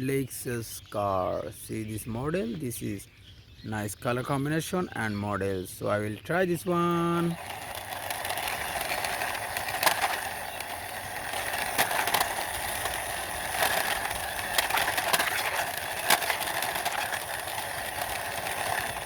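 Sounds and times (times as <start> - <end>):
toy car wheels rolling: 5.9 - 19.0
sharp clicks: 6.8 - 19.0.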